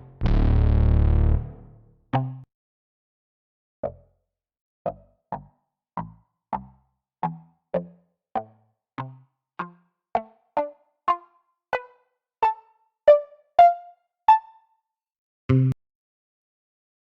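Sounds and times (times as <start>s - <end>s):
synthesizer single notes: 0.0s - 1.8s, 15.5s - 15.8s.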